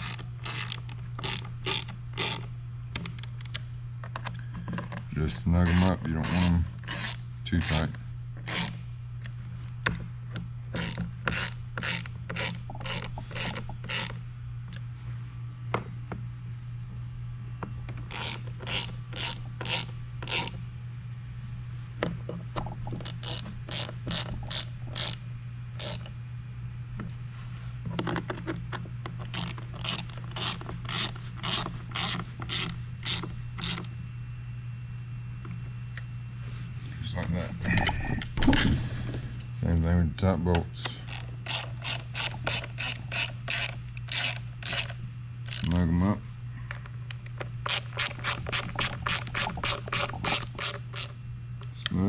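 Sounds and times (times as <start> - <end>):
ratchet wrench clicking: 0.0 - 2.4, 10.8 - 14.2, 18.1 - 20.6, 23.1 - 25.2, 29.3 - 33.9, 41.1 - 44.9, 45.5 - 45.7
steady low hum: 0.0 - 52.0.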